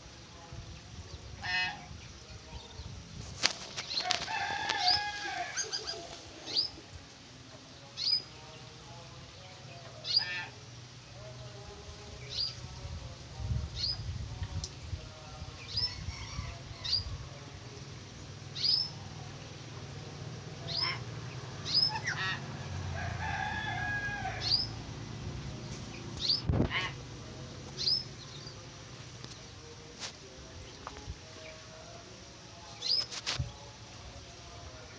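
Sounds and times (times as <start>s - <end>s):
birds whistling: 21.7s - 22.2s, 26.2s - 26.6s.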